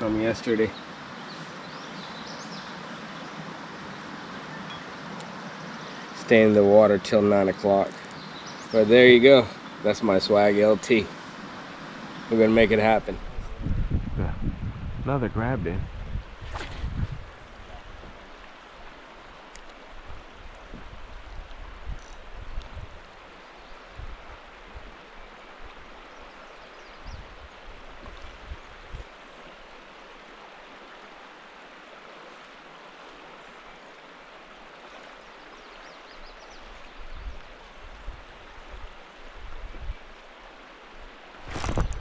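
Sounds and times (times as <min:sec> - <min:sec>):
river water rushing: 0:00.0 - 0:13.4, 0:16.4 - 0:42.0
low thumps on microphone: 0:16.0 - 0:18.3, 0:20.7 - 0:21.0.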